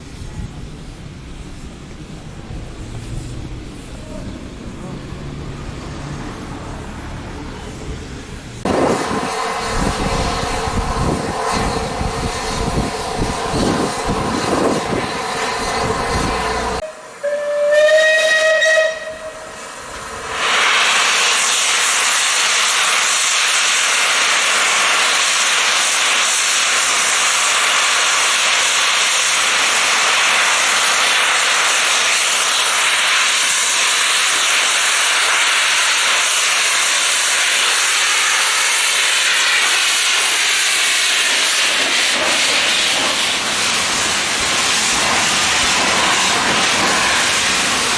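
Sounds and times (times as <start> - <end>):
steam hissing: 0.0 - 47.9
steam locomotive whistle: 14.5 - 19.7.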